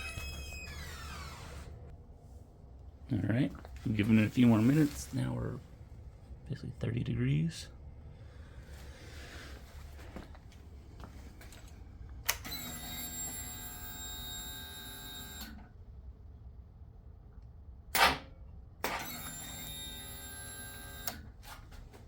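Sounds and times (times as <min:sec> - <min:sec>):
sharp mechanical click: 0:17.9 - 0:19.2.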